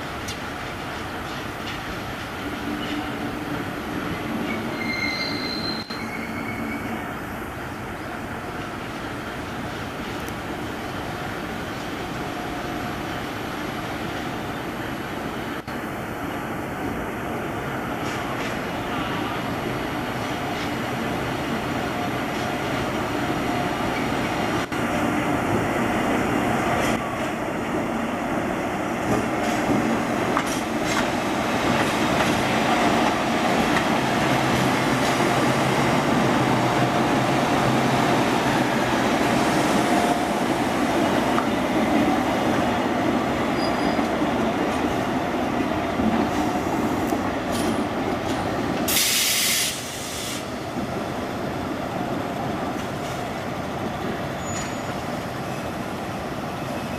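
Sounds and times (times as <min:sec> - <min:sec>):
train wheels clacking on rails: 0:00.0 - 0:06.8, 0:29.0 - 0:51.2
sharp air hiss: 0:48.9 - 0:50.6.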